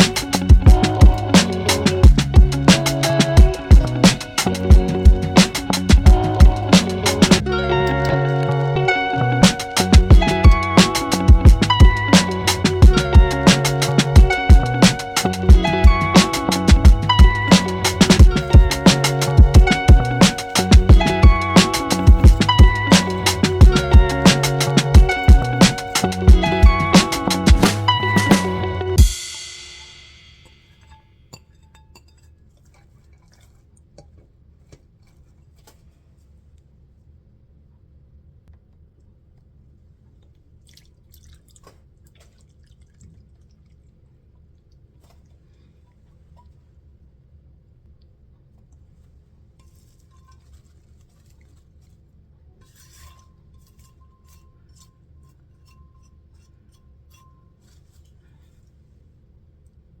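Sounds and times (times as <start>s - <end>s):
steady low hum: 0.0s - 31.0s
utensils and dishes clinking: 9.4s - 34.2s, 52.6s - 58.5s.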